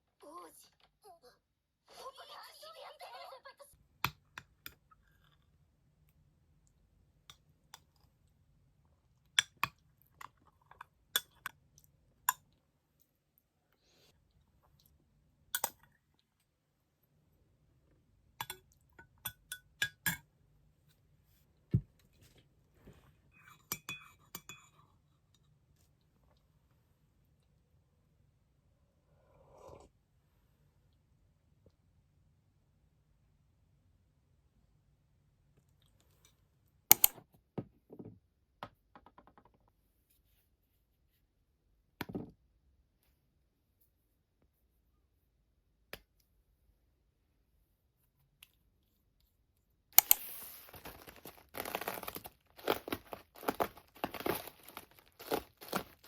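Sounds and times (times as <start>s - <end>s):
small hard objects clinking: 50.0s - 56.0s.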